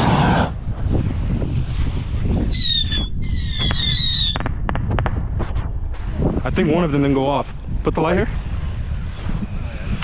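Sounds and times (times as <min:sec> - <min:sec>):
wind buffeting microphone: 0:00.0 - 0:10.0
whistling fireworks: 0:02.4 - 0:05.1
firework pops: 0:03.6 - 0:06.1.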